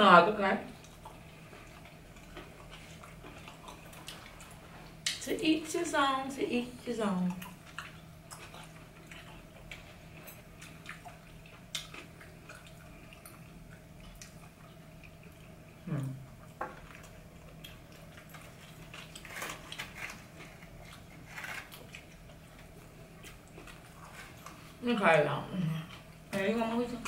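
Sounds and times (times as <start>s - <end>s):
chewing and lip-smacking: 0.7s - 5.2s, 7.2s - 24.8s
person humming mm: 15.8s - 16.2s.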